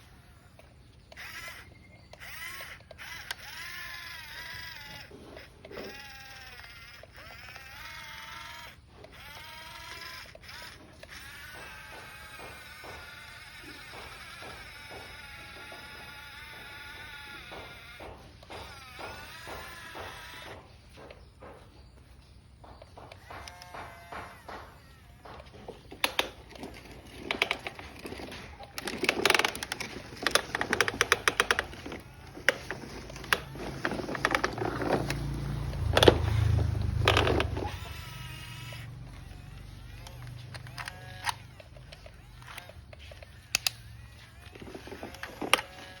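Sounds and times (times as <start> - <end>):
plastic toy trucks clattering: 23.1 - 46.0.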